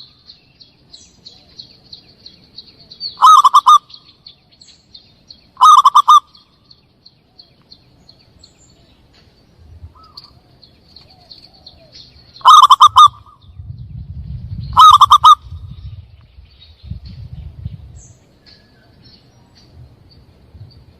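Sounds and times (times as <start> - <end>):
small birds chirping: 0.0 - 20.9
dove cooing bursts: 3.2 - 3.9, 5.6 - 6.3, 11.5 - 13.4, 14.7 - 15.7
low rumble: 13.2 - 18.4.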